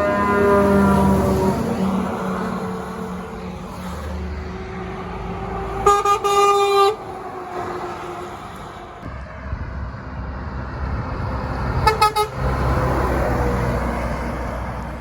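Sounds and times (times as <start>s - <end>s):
truck horn blasts: 0.0s - 2.6s, 5.8s - 7.2s, 11.7s - 12.7s
truck engine and road rumble: 0.0s - 15.0s.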